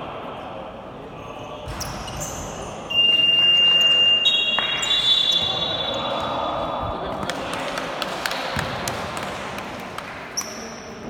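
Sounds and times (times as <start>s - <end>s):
basketball bouncing: 8.5s - 9.4s.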